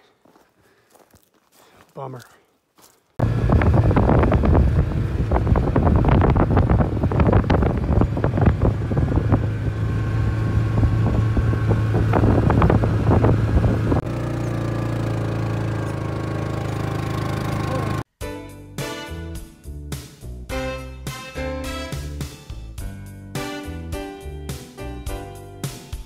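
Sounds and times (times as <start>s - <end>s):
vehicle engine droning: 3.2s - 18.1s.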